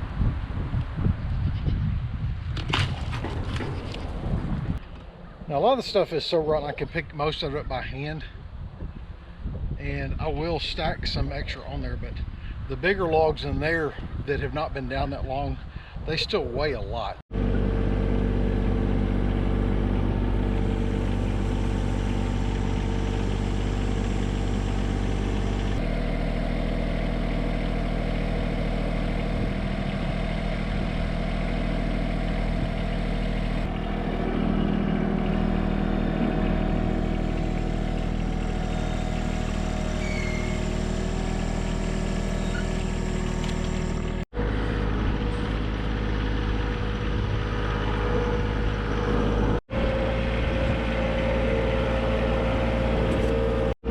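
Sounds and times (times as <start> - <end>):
tractor engine running: 17.3 - 53.9.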